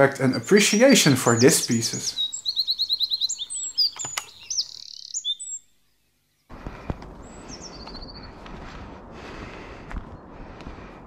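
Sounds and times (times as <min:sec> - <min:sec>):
songbirds chirping: 0:00.0 - 0:08.6
noisy outdoor background: 0:00.0 - 0:11.0
bird trill: 0:00.3 - 0:06.1, 0:07.3 - 0:08.4.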